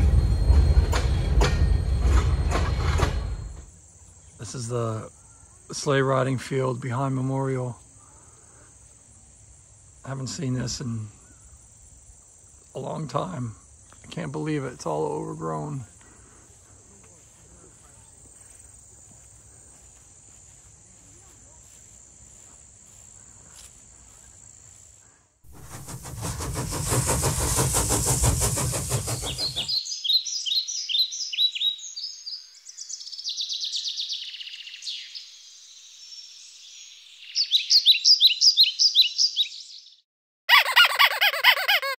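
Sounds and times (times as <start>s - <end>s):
loud rushing noise: 0.0s - 3.5s, 25.5s - 29.8s
meadow insects droning: 0.0s - 25.4s, 27.3s - 39.8s
faint wind: 0.0s - 35.4s
bird chirps: 28.9s - 41.6s.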